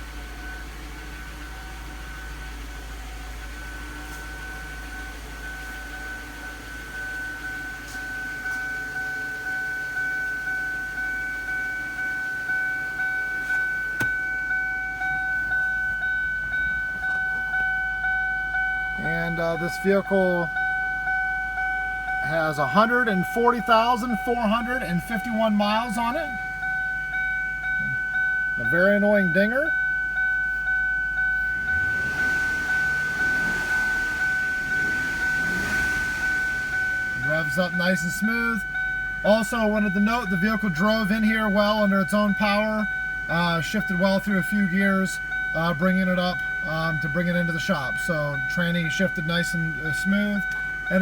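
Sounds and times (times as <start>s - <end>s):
dashboard warning chime dinging: 0.0s - 51.0s
car engine revving: 31.4s - 38.8s.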